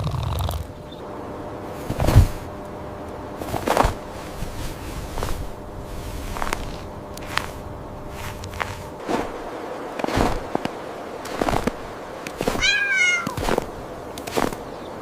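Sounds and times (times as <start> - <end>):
short noisy thuds: 1.8 - 2.5
cat meowing: 12.6 - 13.4.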